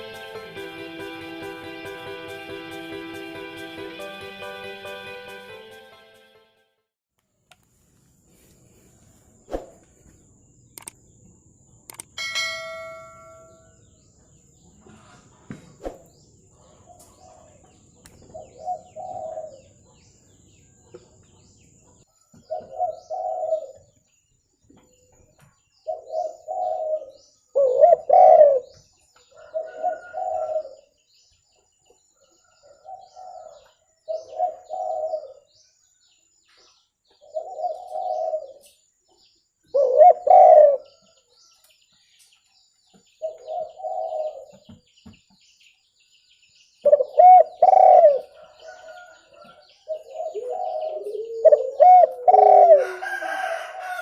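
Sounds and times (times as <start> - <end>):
dove cooing: 18.3 - 19.7, 22.5 - 23.9, 25.9 - 28.8, 29.4 - 30.8, 32.8 - 35.5, 37.2 - 38.6, 39.7 - 40.9, 43.2 - 44.6, 46.8 - 49.0, 49.9 - 53.2.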